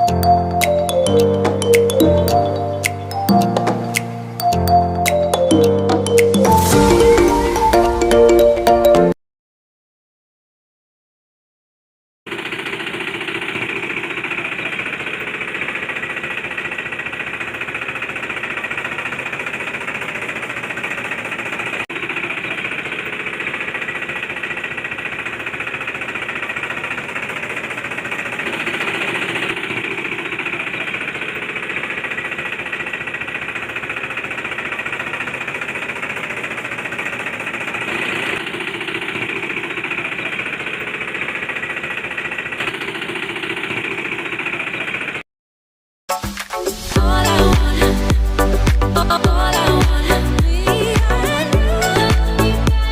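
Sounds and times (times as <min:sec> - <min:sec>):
small electric motor running: 0:12.3 - 0:45.2.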